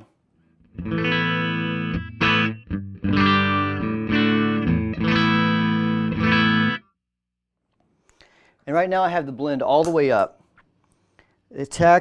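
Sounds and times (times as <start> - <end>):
electric guitar strumming chords: 0.7 - 6.9.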